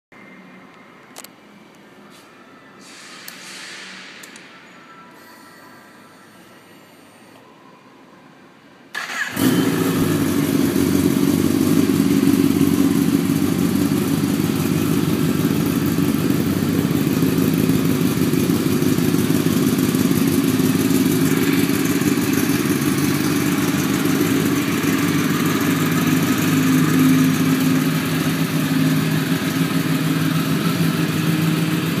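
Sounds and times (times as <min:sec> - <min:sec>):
motorcycle starter turning: 0:09.0 - 0:10.7
motorcycle engine idling: 0:09.0 - 0:32.0.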